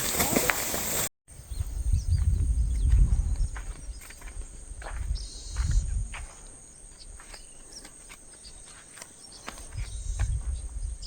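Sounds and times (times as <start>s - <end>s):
low rumble: 1.4s - 6.3s.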